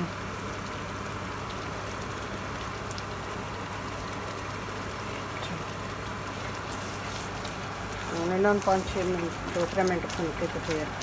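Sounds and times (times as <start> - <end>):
food sizzling in a wok: 4.9 - 11.0.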